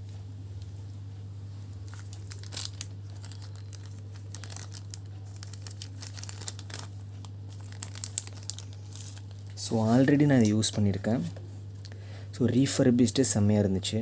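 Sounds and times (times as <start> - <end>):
low electrical hum: 0.0 - 14.0
packaging crinkling and rustling: 1.8 - 11.3.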